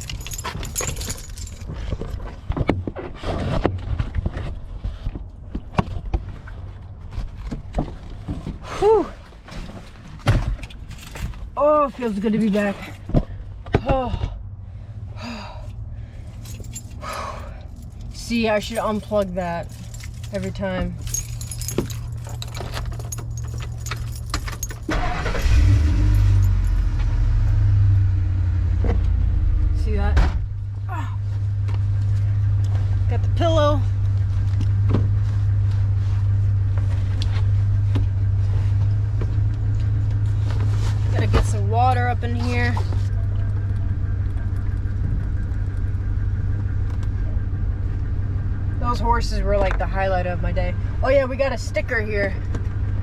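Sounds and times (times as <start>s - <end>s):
keys rustling: 0.0s - 2.2s, 10.6s - 13.0s, 16.3s - 27.2s
car engine starting and idling: 10.5s - 53.0s.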